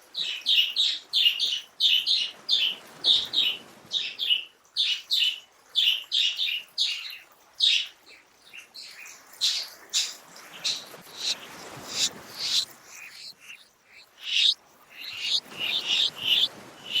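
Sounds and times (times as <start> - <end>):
bird chirping: 8.5 - 17.0.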